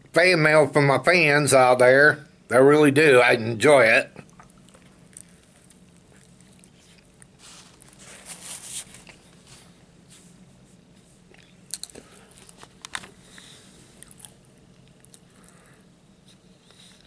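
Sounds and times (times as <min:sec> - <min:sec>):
low steady hum: 0:00.0 - 0:17.0
wet mouth clicks: 0:04.2 - 0:07.3
person chewing: 0:04.2 - 0:08.1, 0:11.2 - 0:17.0
napkin rubbing across mouth: 0:07.4 - 0:10.4.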